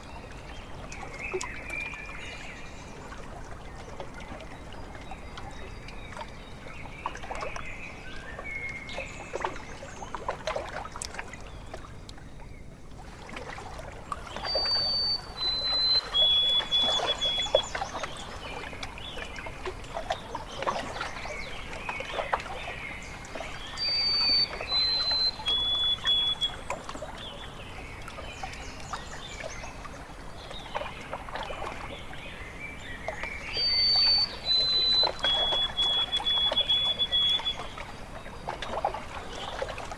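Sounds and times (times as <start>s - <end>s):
water lapping and splashing: 0.0s - 39.9s
soft wavering bird calls: 14.2s - 39.9s
bird three-note whistle: 14.3s - 17.8s, 23.7s - 26.8s, 33.6s - 37.8s.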